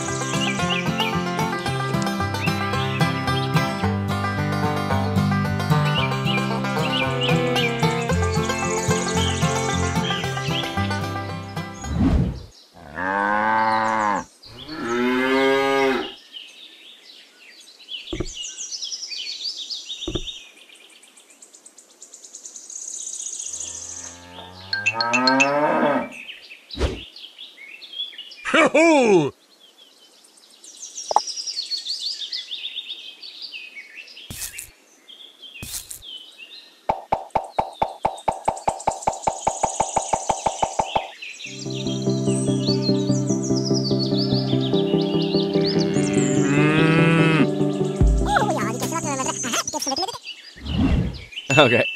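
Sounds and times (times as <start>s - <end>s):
cattle mooing: 45.8s - 47.5s.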